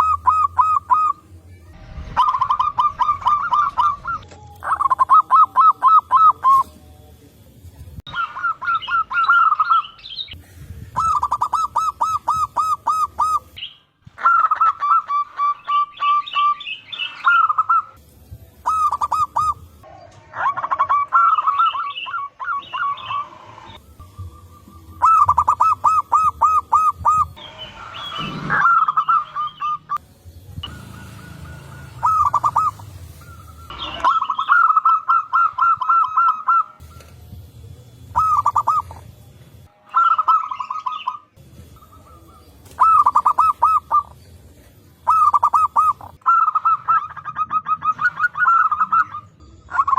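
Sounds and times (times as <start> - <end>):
high bird chirps: 0.0 - 6.7, 8.1 - 10.4, 11.0 - 18.0, 18.6 - 19.8, 20.4 - 37.4, 38.1 - 39.1, 39.7 - 44.4, 45.0 - 49.9
doves rolling coos: 0.0 - 6.8, 8.1 - 18.0, 18.6 - 30.0, 30.6 - 49.9.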